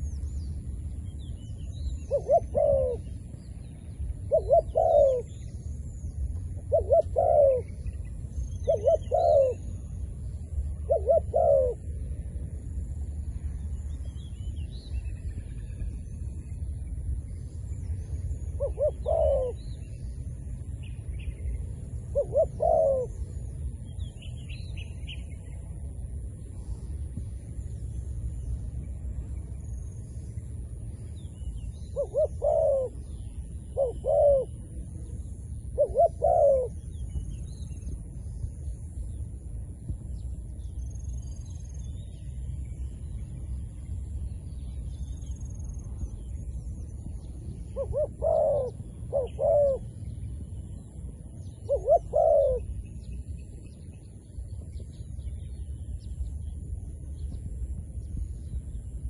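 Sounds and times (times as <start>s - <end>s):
small birds chirping: 0.0s - 12.1s, 13.1s - 59.0s
steady low rumble: 0.0s - 59.0s
dove cooing: 2.1s - 3.2s, 4.3s - 5.4s, 6.6s - 7.8s, 8.6s - 9.7s, 10.8s - 12.0s, 18.6s - 19.7s, 22.1s - 23.2s, 31.9s - 36.9s, 47.7s - 50.0s, 51.6s - 52.9s.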